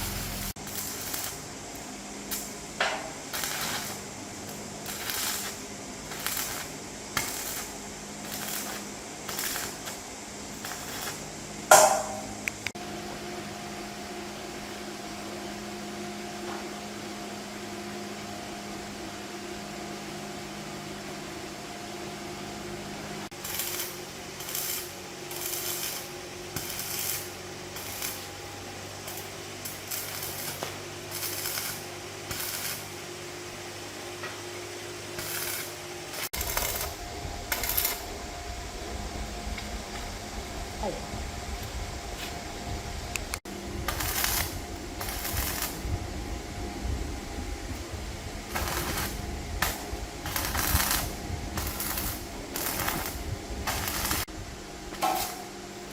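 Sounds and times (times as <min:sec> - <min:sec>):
loud metal bang: 0:11.7 - 0:12.4
hand tool striking metal: 0:11.7 - 0:12.5, 0:55.0 - 0:55.5.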